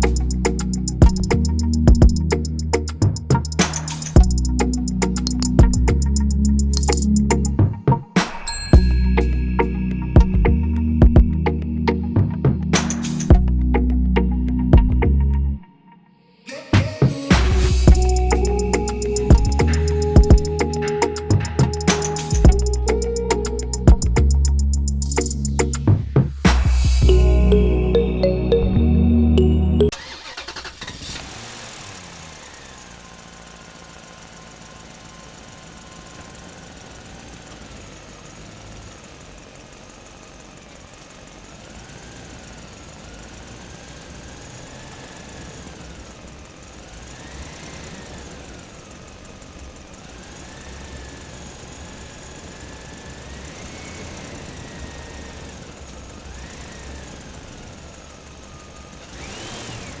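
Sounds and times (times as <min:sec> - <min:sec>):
small motor whining: 0:29.9 - 1:00.0.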